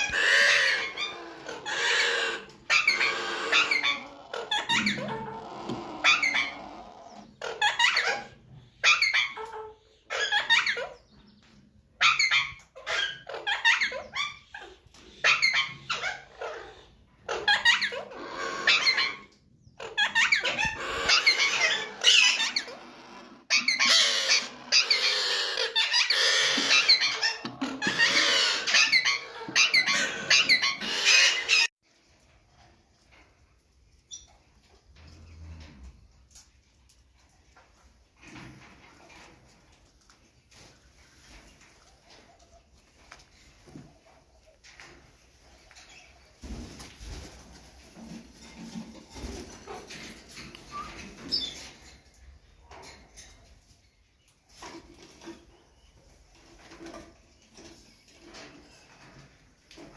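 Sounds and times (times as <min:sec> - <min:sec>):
parrots calling: 0:00.0 - 0:11.0, 0:12.0 - 0:31.7.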